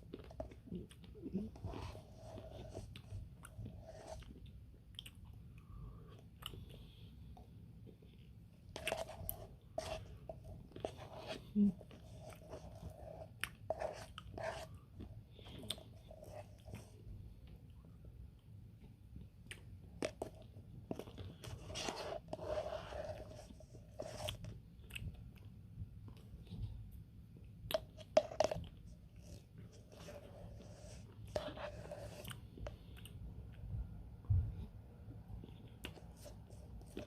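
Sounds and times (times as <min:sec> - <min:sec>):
person chewing and crunching: 0:00.0 - 0:07.0, 0:18.8 - 0:21.7.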